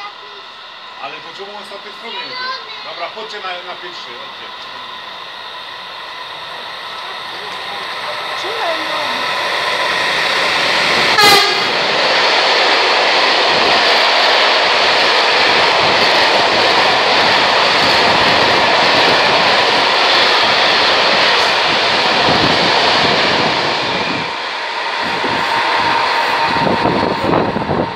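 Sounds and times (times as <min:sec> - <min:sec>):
train horn blast: 0:11.1 - 0:11.8.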